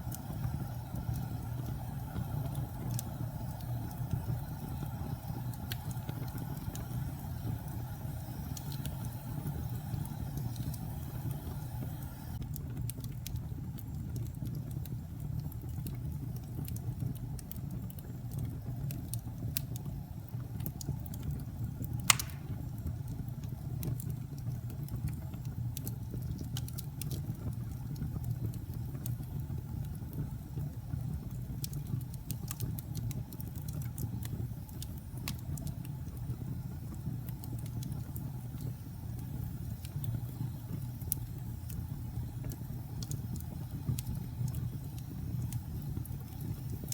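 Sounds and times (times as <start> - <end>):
fire crackling: 0.0 - 46.9
wood fire rumbling: 0.0 - 46.9
loud sharp pop: 22.1 - 22.6.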